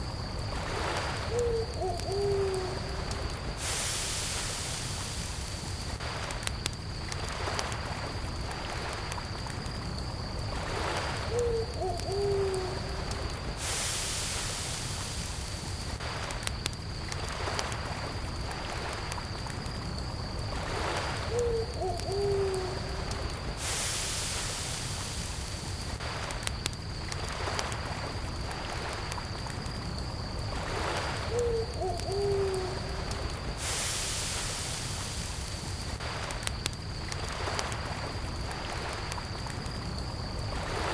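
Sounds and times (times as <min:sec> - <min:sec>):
campfire crackling: 0:00.0 - 0:40.9
crickets trilling: 0:00.0 - 0:40.9
gentle lake waves: 0:00.0 - 0:40.9
owl hooting: 0:01.3 - 0:02.9, 0:11.3 - 0:12.9, 0:21.3 - 0:22.8, 0:31.3 - 0:33.0.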